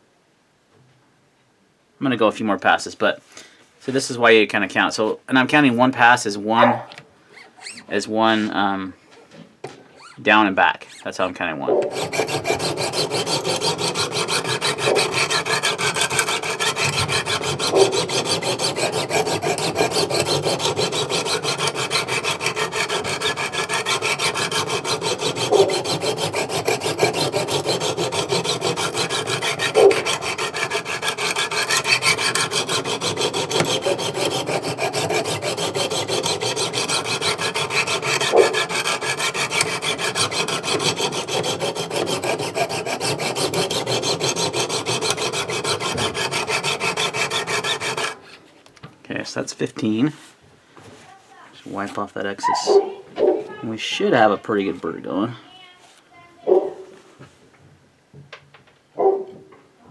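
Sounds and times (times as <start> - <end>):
sharpening stones rasping on knife: 11.9 - 48.2.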